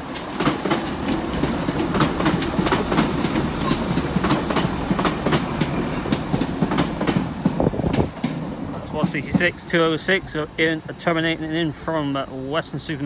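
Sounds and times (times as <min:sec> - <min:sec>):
train wheels clacking over joints: 0:00.0 - 0:09.6
train rumble: 0:00.0 - 0:13.0.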